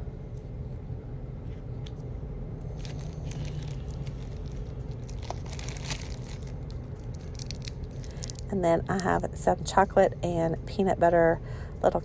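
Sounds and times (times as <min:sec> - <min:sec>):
steady low hum: 0:00.0 - 0:12.0
plastic wrappers crinkling: 0:02.7 - 0:09.2.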